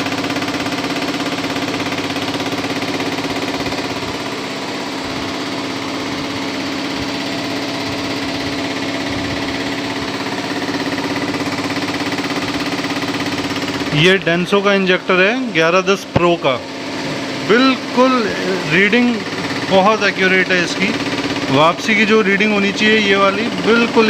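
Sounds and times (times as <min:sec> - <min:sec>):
machine hum with fast pulsing: 0:00.0 - 0:24.0.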